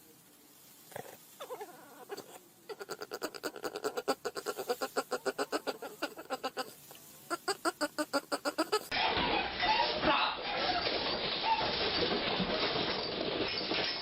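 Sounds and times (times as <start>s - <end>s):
animal making rapid short calls: 1.4s - 9.0s.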